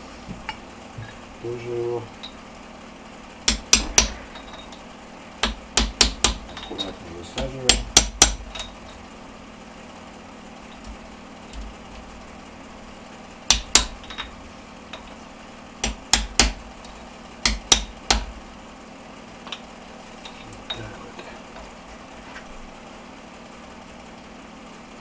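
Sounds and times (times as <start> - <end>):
hammer strikes on metal ring: 3.5 - 4.8.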